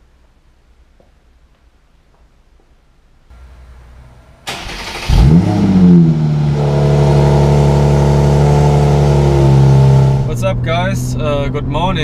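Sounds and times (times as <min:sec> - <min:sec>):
car engine starting and idling: 0:03.3 - 0:11.8
starter motor cranking: 0:04.5 - 0:05.5.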